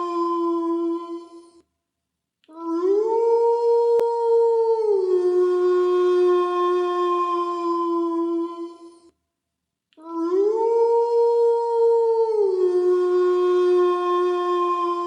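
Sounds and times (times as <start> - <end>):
wolf howling: 10.2 - 15.0.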